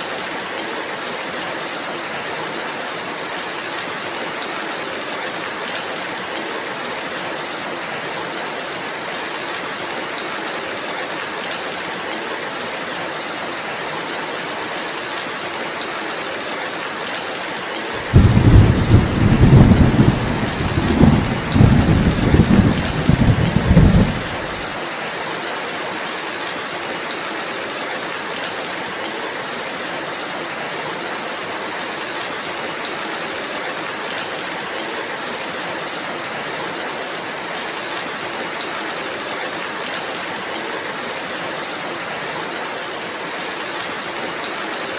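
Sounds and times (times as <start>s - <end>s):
steady rain: 0.0s - 44.9s
thunder rumbling: 18.0s - 24.7s.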